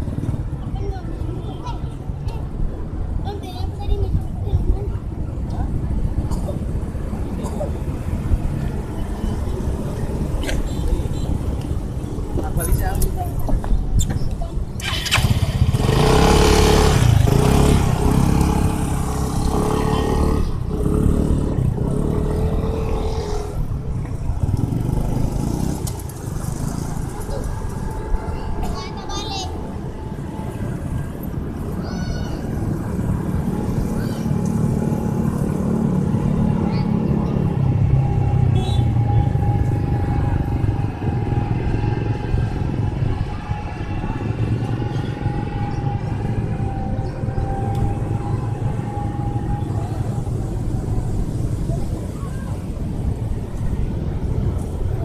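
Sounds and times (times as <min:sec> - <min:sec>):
low road rumble: 0:00.0 - 0:55.0
vehicle engine under load: 0:14.2 - 0:29.1.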